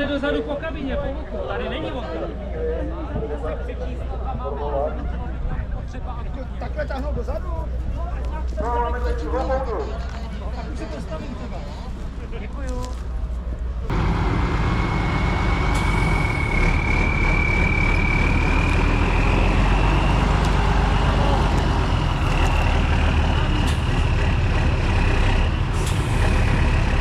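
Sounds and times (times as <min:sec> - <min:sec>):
truck engine running under load: 0:13.1 - 0:27.0
thin rising whine: 0:13.9 - 0:23.0.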